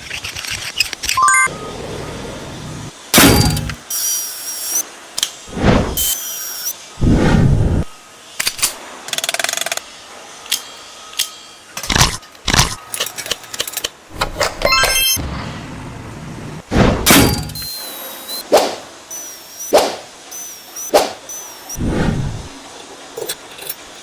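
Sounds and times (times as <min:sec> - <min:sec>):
short high tones: 0:01.2 - 0:01.7.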